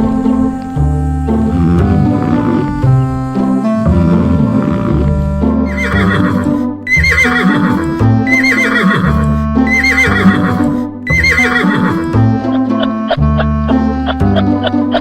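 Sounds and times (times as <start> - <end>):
background music: 0.0 - 15.0
horse neighing: 5.7 - 12.2.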